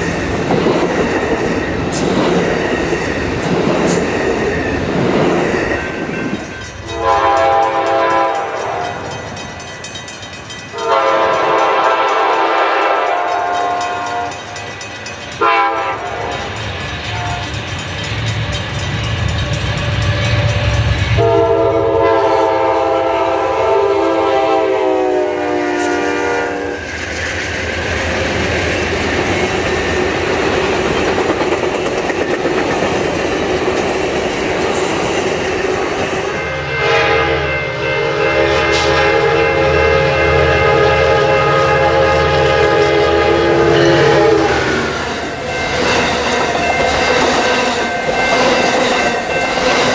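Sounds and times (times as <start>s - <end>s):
train rail noise rumbling: 0.0s - 49.9s
train horn blasts: 6.9s - 9.1s, 10.7s - 14.4s, 15.4s - 17.6s, 20.0s - 26.9s, 36.3s - 45.9s.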